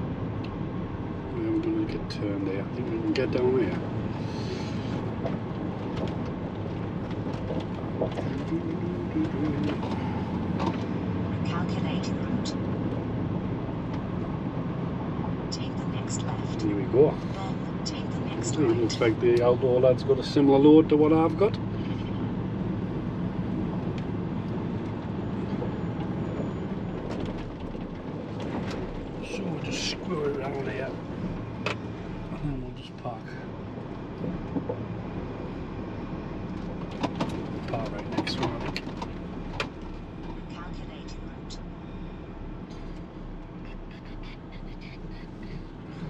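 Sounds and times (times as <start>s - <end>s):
road noise: 0.0s - 46.0s
truck engine rumble: 0.0s - 46.0s.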